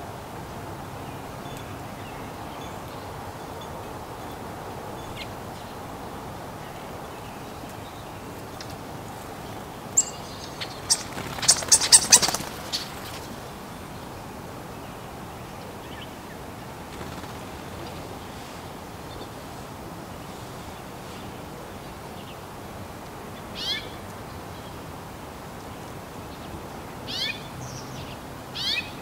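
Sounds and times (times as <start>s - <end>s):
steady background hiss: 0.0s - 29.0s
songbird chirping: 1.0s - 19.4s.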